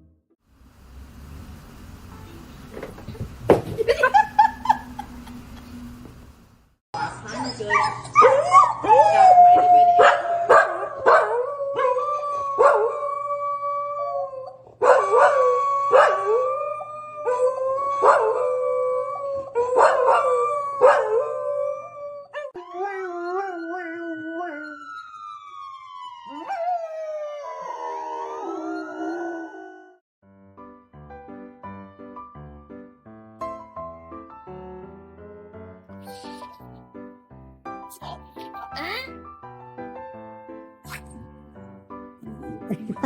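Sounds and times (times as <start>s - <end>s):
dog yelping: 7.3s - 9.1s
dog howling: 7.6s - 24.8s, 26.3s - 30.0s.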